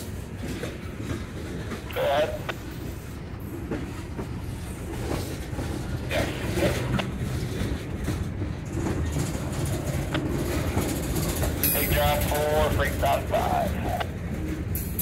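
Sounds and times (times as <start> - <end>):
train wheels rumbling on rail: 0.0 - 15.0
clicks and clanks: 4.9 - 15.0.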